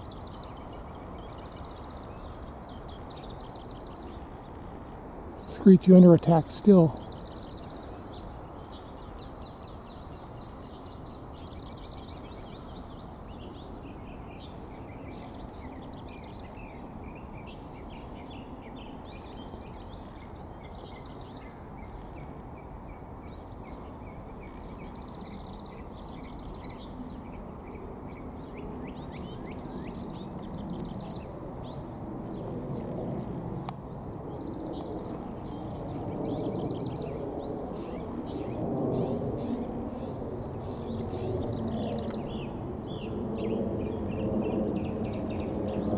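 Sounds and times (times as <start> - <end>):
songbirds chirping: 0.0 - 45.9.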